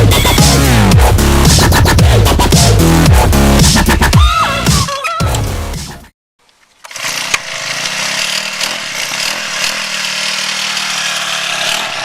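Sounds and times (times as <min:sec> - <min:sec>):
small engine buzzing: 0:06.7 - 0:12.0.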